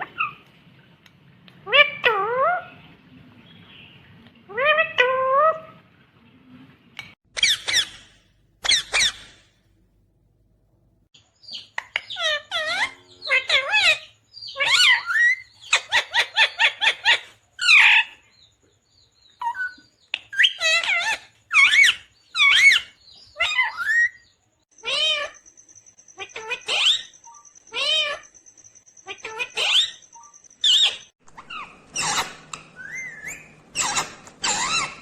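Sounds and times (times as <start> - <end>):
parakeet chirping and squawking: 1.6 - 2.8, 7.3 - 9.4, 11.4 - 18.2, 19.4 - 35.0.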